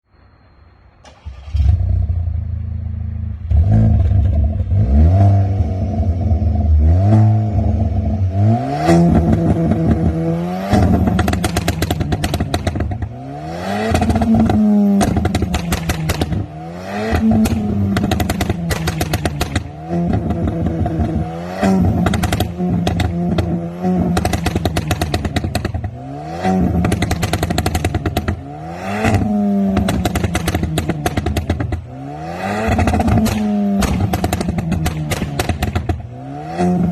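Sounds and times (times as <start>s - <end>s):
car engine starting and revving: 1.0s - 36.9s
exhaust crackles and pops: 8.9s - 13.2s, 13.8s - 36.9s.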